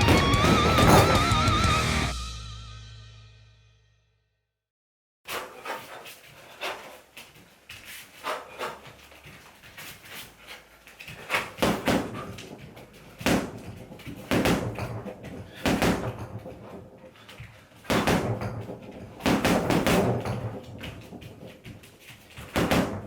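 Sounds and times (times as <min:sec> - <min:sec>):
punches on heavy bag: 0:00.0 - 0:01.5, 0:11.2 - 0:16.7, 0:17.8 - 0:21.4, 0:22.4 - 0:23.0.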